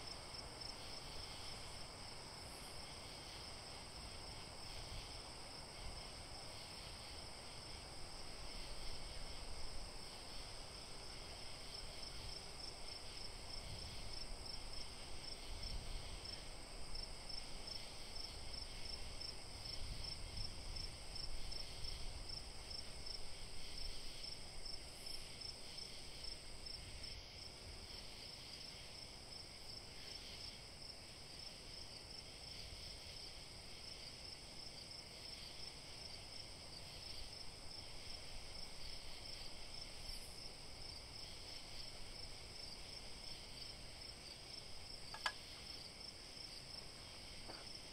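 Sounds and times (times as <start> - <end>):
crickets chirping: 0.0 - 47.9.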